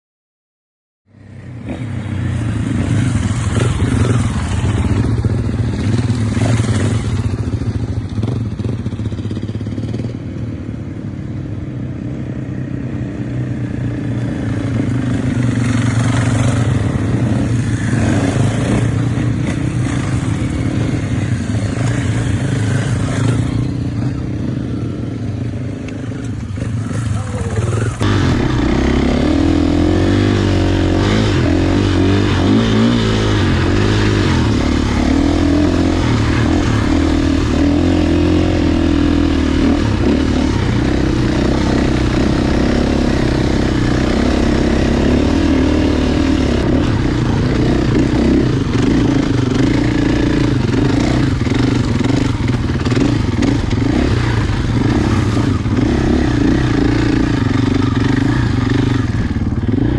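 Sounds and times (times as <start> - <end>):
motocross bike engine revving: 1.4 - 10.2, 13.2 - 59.9.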